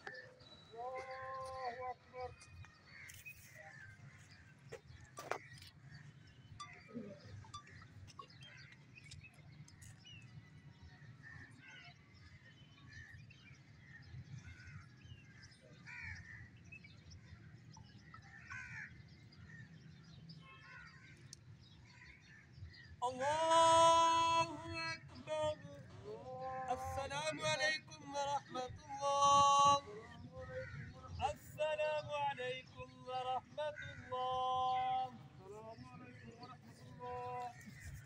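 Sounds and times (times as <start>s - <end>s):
bird calls and chirps: 0.0s - 38.0s.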